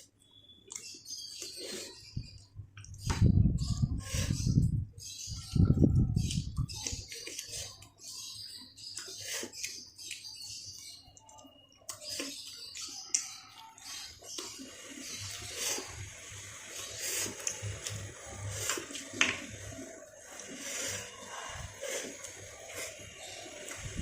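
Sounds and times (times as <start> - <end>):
person chewing and mouth smacking: 0.0 - 1.6, 6.0 - 8.1, 8.9 - 14.5.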